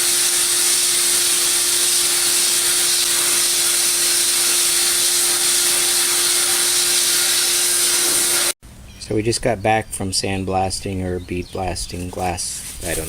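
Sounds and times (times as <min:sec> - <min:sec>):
compressed air blasting hiss: 0:00.0 - 0:08.6.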